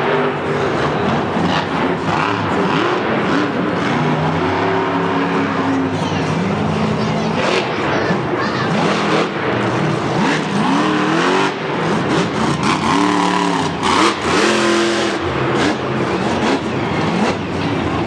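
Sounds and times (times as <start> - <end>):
truck engine revving hard: 0.0 - 18.0.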